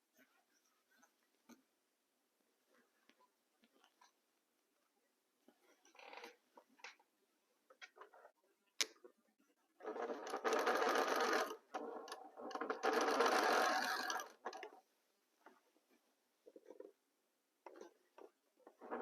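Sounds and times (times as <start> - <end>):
sewing machine stitching: 9.8 - 14.8, 18.7 - 19.0.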